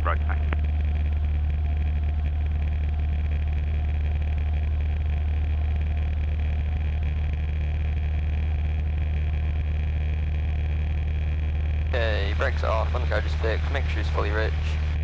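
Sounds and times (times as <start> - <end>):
airplane engine and propeller droning: 0.0 - 15.0.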